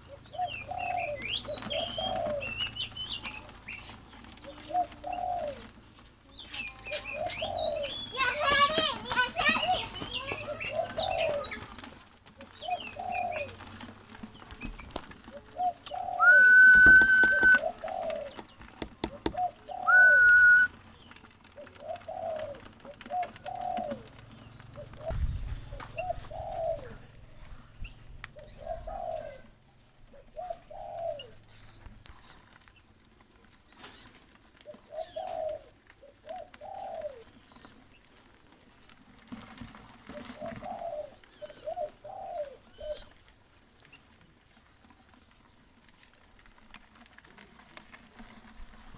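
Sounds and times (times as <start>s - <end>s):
dove cooing: 0.0s - 5.8s, 6.7s - 32.5s, 33.7s - 38.0s, 39.6s - 43.2s
bird high chirps: 0.4s - 3.9s, 12.7s - 13.8s, 15.8s - 17.8s, 19.7s - 20.7s, 26.0s - 27.0s, 27.8s - 29.2s, 30.0s - 32.4s, 33.6s - 34.2s, 34.9s - 35.5s, 37.4s - 37.8s, 41.2s - 42.0s, 42.6s - 43.2s
held whistle notes: 16.2s - 17.6s, 19.9s - 20.7s.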